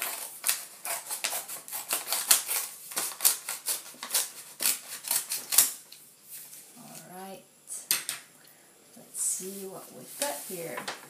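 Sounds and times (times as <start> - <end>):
package being cut open: 0.0 - 5.8.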